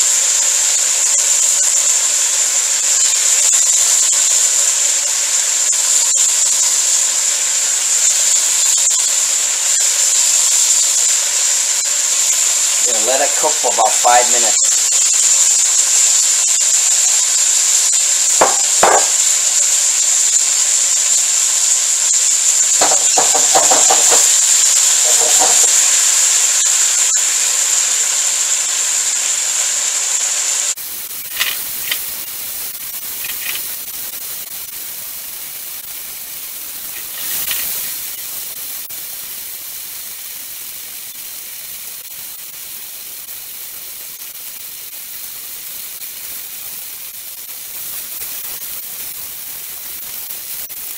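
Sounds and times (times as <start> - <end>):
fish sizzling in hot oil: 0.0 - 50.9
metal tongs clinking on wok: 33.2 - 33.7.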